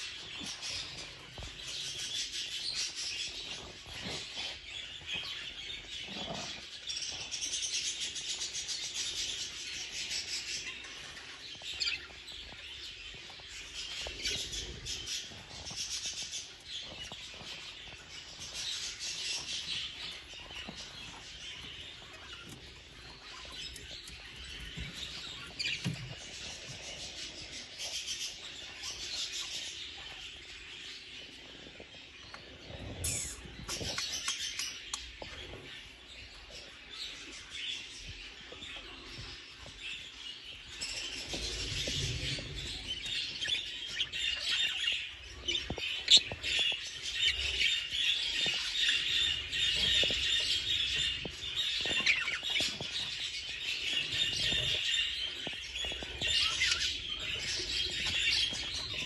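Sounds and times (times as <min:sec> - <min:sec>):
budgerigars chattering and warbling: 0:32.7 - 0:35.8, 0:40.8 - 0:59.0.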